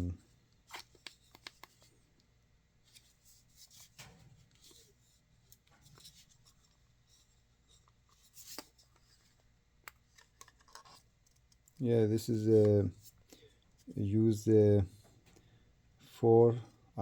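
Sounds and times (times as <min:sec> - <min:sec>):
handling noises rubbing and scraping: 0:02.8 - 0:15.3.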